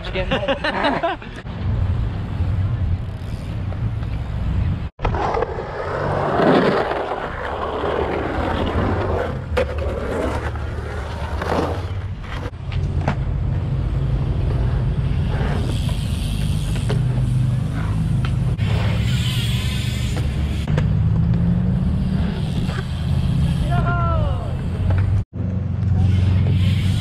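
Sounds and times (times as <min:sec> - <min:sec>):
skateboard wheels rolling on concrete: 0:00.0 - 0:27.0.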